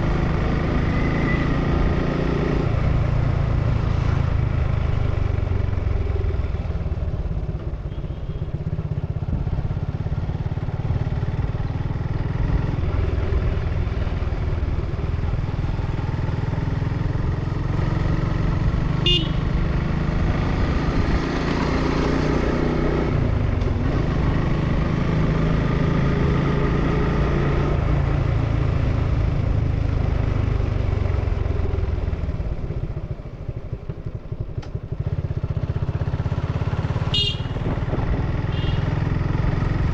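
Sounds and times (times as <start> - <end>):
motorcycle engine running: 1.7 - 39.9
high horn beep: 7.9 - 8.5, 19.0 - 19.5, 37.0 - 37.7, 38.5 - 38.8.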